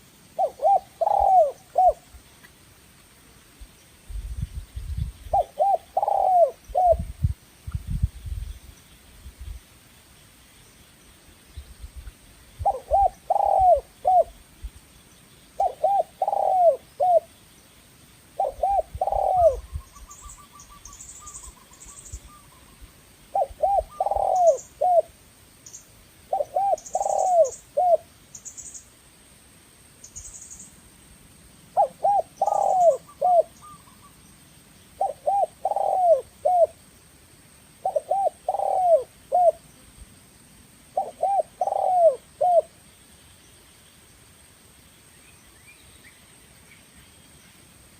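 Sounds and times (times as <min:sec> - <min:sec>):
dove cooing: 0:00.4 - 0:02.0, 0:05.3 - 0:07.1, 0:12.6 - 0:14.4, 0:15.6 - 0:17.3, 0:18.4 - 0:25.1, 0:26.3 - 0:28.1, 0:31.8 - 0:34.1, 0:35.0 - 0:36.8, 0:37.8 - 0:39.7, 0:41.0 - 0:42.7.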